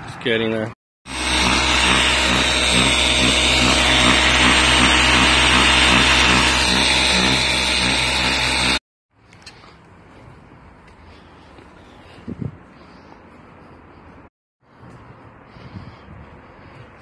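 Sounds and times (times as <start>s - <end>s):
motor hum: 1.1s - 8.8s
pressure washer water spray hissing: 1.1s - 8.8s.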